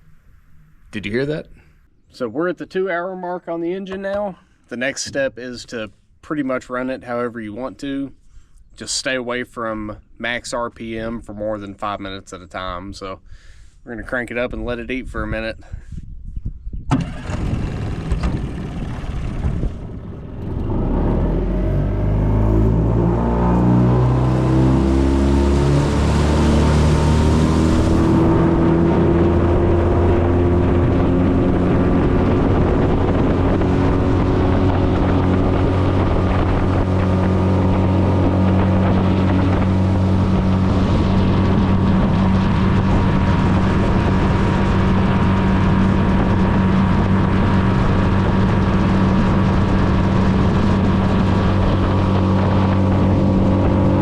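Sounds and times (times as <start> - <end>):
wind on microphone: 14.4 - 54.0
outboard motor throttled up: 16.9 - 54.0.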